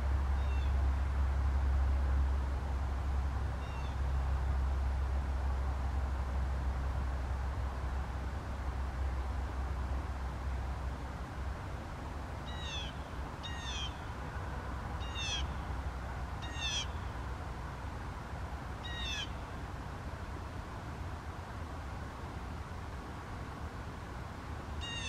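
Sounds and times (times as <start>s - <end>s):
steady low rumble: 0.0s - 24.9s
bird calling: 12.5s - 14.1s, 15.0s - 15.6s, 16.4s - 17.1s, 18.8s - 19.5s, 24.8s - 25.0s.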